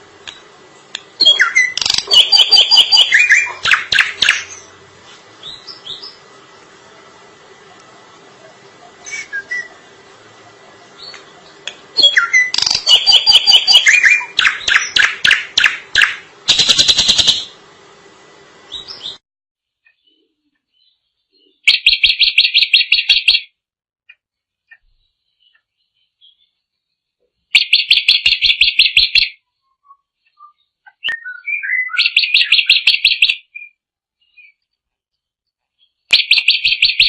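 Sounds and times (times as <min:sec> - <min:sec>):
bird singing whistled notes: 0:01.2 - 0:04.7, 0:05.4 - 0:06.2, 0:09.0 - 0:09.8, 0:11.0 - 0:17.5, 0:27.6 - 0:34.6, 0:35.8 - 0:37.0
bird sharp notes: 0:01.2 - 0:04.8, 0:10.9 - 0:17.6.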